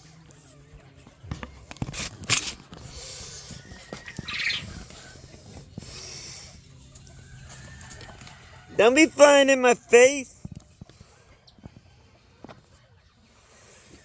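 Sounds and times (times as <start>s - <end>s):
poultry moving about: 0.0s - 9.9s.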